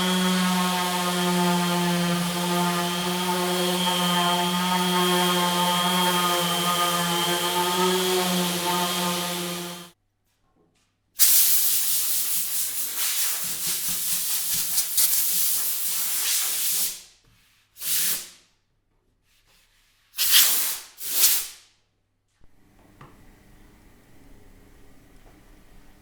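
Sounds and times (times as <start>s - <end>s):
spray paint hissing: 11.2s - 17.0s.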